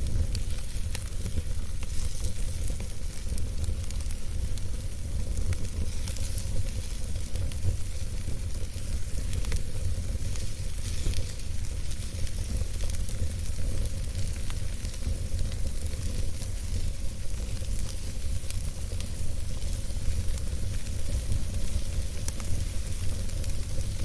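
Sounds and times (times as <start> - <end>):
campfire crackling: 0.0 - 24.0
low rumble of flames: 0.0 - 24.0.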